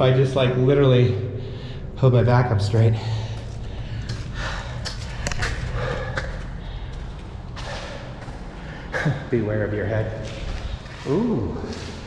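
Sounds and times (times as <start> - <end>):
man breathing hard: 1.2 - 2.0, 2.9 - 9.2.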